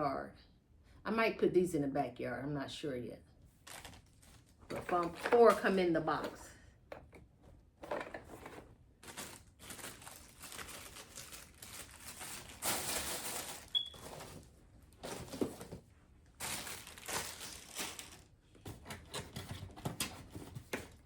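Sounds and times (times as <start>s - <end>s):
plastic packaging crinkling: 3.6s - 5.8s, 7.8s - 18.4s.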